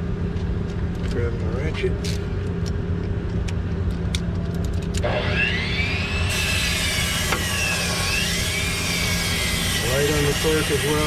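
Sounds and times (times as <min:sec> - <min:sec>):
high wavering whine: 0:04.8 - 0:11.0.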